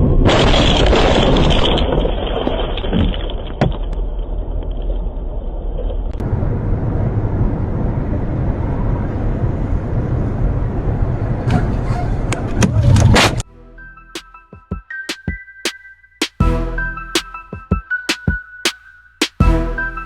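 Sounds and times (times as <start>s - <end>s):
car engine and road noise: 6.1s - 11.5s.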